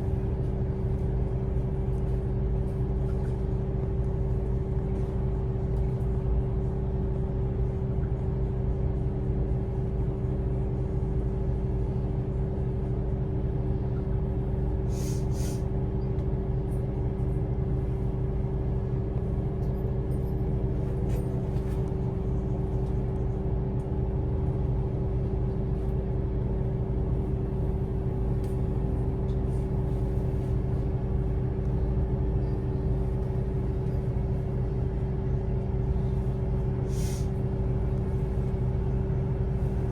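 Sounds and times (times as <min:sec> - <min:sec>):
bus drone and rumble: 0:00.0 - 0:39.9
pneumatic air hiss: 0:14.9 - 0:15.6, 0:36.9 - 0:37.3.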